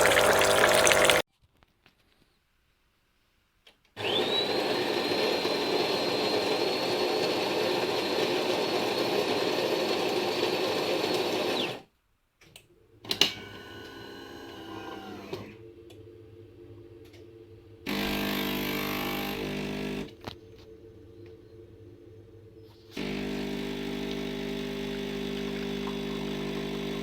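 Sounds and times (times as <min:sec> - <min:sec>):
coffee machine motor whining: 0:21.7 - 0:27.0.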